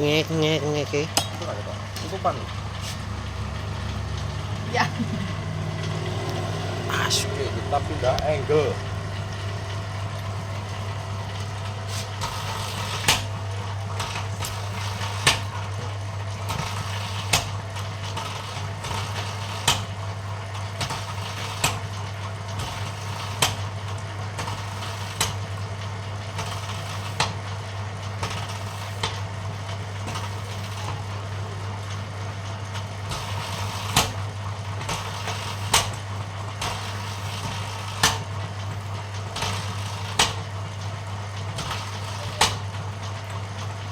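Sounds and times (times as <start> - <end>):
machine motor hum: 0.0 - 20.1.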